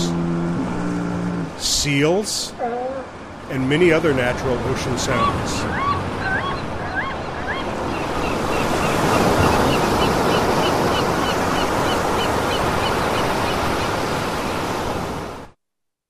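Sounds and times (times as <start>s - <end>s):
surf and waves: 0.0s - 15.6s
high chirping calls: 5.1s - 13.6s.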